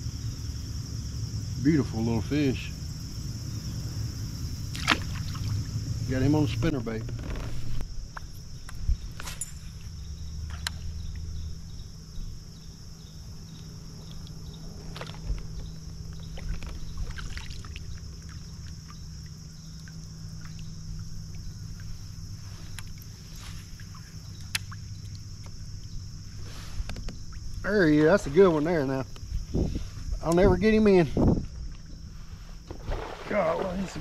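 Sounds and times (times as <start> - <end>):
steady low hum: 0.0 - 34.0
water trickling and dripping: 16.1 - 26.0.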